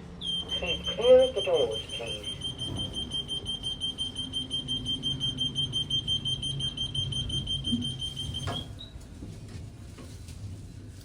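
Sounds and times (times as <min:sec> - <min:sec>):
lift alarm beeping: 0:00.2 - 0:08.9.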